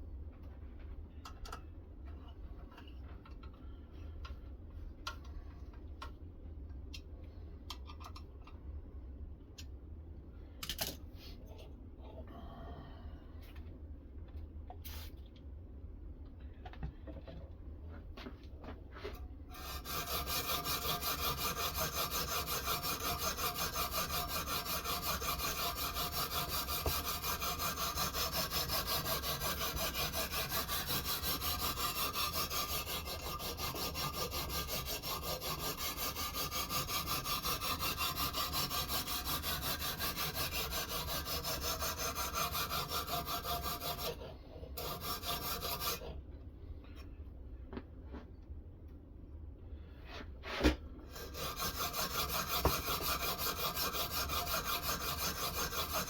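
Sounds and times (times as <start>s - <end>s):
sharpening stone scraping knife: 44.8s - 46.1s, 51.1s - 56.0s.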